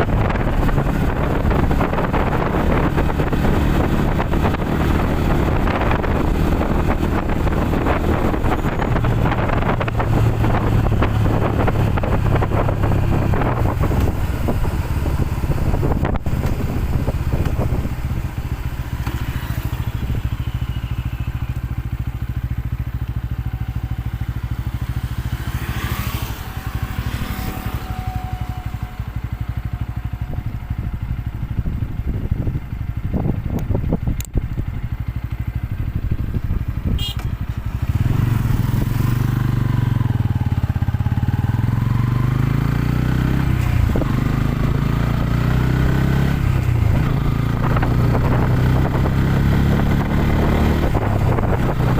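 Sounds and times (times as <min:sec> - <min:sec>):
motorcycle engine droning: 0:00.0 - 0:51.9.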